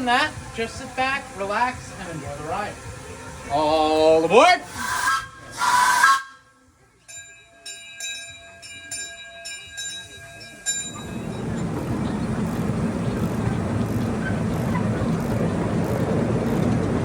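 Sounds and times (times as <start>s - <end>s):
locomotive bell ringing: 7.0s - 12.8s
train rumbling along track: 7.7s - 17.0s.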